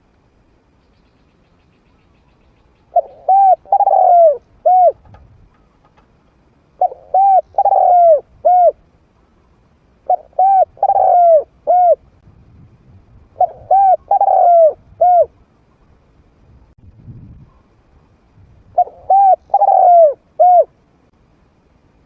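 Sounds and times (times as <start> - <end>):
dove cooing: 2.8 - 5.9, 6.8 - 8.8, 10.0 - 12.1, 13.4 - 15.4, 18.8 - 20.8.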